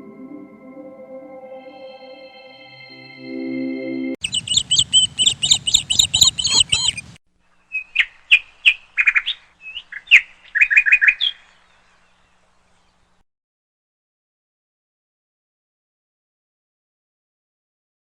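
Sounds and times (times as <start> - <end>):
small bird chirping: 4.2 - 13.2.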